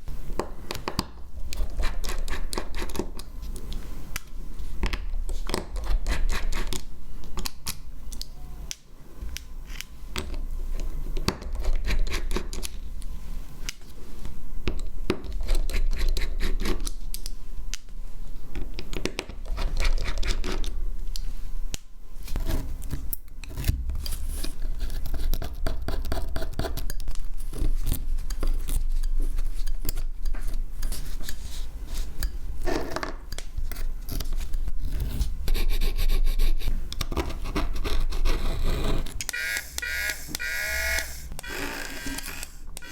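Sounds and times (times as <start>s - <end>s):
steady low hum: 33.5s - 42.9s.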